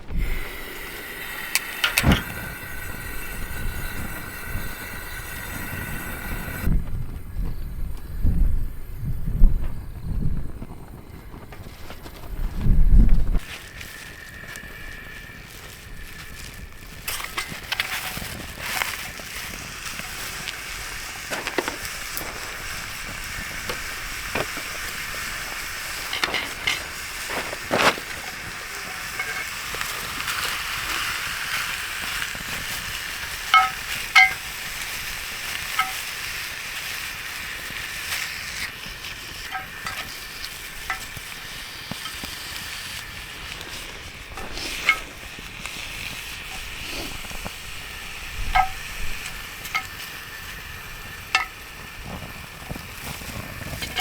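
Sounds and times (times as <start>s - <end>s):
food sizzling in a frying pan: 0.0s - 12.3s, 13.4s - 54.0s
utensil clinking and scraping pan: 0.1s - 6.7s, 16.1s - 36.9s, 37.7s - 43.0s, 43.6s - 47.5s, 48.4s - 50.5s, 51.1s - 52.2s, 53.1s - 54.0s.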